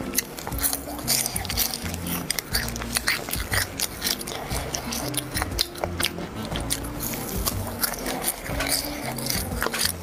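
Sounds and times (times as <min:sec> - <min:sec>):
background music: 0:00.0 - 0:10.0
chewing with mouth clicks: 0:00.0 - 0:10.0.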